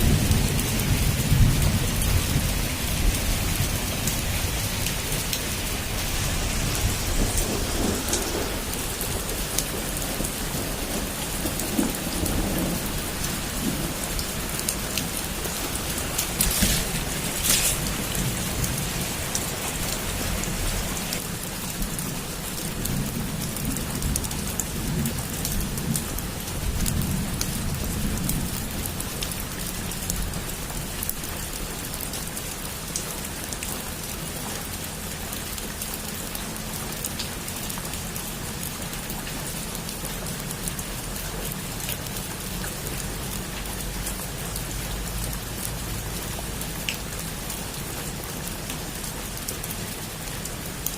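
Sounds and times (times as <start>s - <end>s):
low rumble of thunder: 0.0s - 30.5s
heavy rain on a roof: 0.0s - 50.9s.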